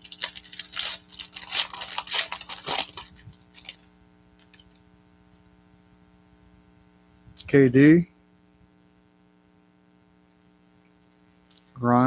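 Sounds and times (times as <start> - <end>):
card pack wrappers crinkling and tearing: 0.0 - 4.8
faint low electrical hum: 0.0 - 12.0.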